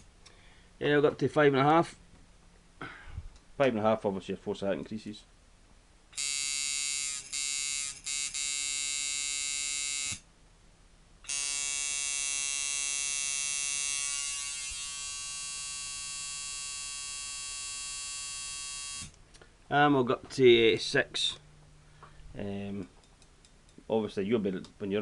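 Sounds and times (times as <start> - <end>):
tattoo machine buzzing: 6.2 - 10.2, 11.3 - 19.2.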